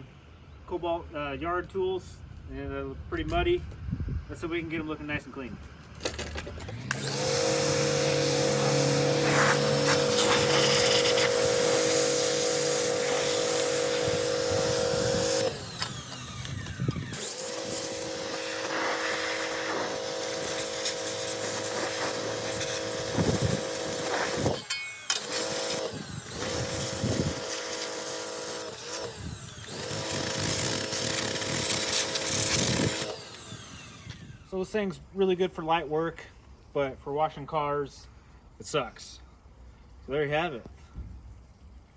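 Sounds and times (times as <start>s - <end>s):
pressure washer motor whine: 6.2s - 34.7s
water jet hiss: 8.4s - 14.1s, 17.7s - 23.3s.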